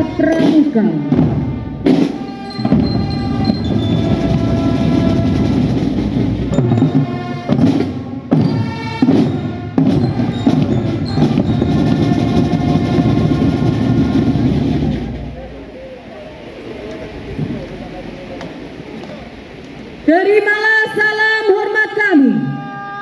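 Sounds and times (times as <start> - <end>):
brass sustained notes: 0.0 - 15.8
drums playing: 0.0 - 15.8
heavy drum strokes: 0.0 - 15.9.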